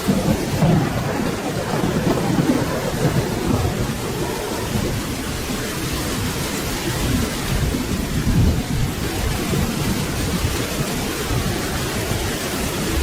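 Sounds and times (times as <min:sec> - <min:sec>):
rolling thunder rumble: 0:00.0 - 0:13.0
steady rain: 0:00.0 - 0:13.0.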